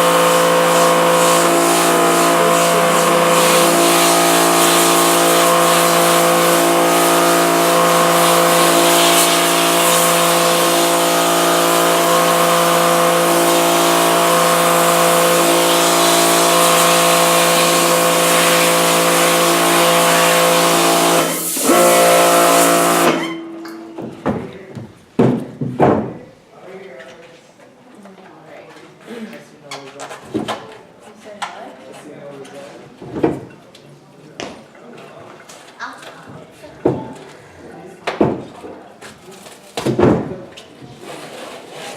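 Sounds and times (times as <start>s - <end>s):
water jet hissing: 0.0s - 23.4s
pressure washer motor hum: 0.0s - 24.3s
knocks: 23.9s - 26.2s.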